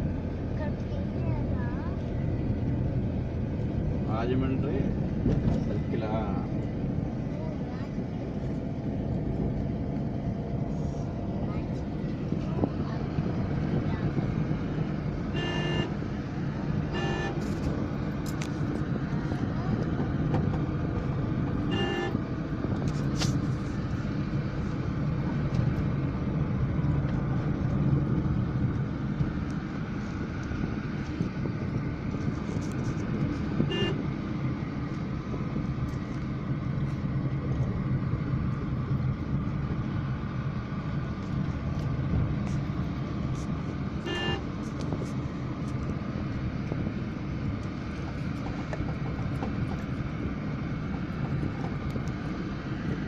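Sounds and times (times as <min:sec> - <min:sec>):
vehicle road and engine rumble: 0:00.0 - 0:53.0
horn toots: 0:15.3 - 0:16.0, 0:16.9 - 0:17.6, 0:21.7 - 0:22.2, 0:33.6 - 0:34.0, 0:44.0 - 0:44.5.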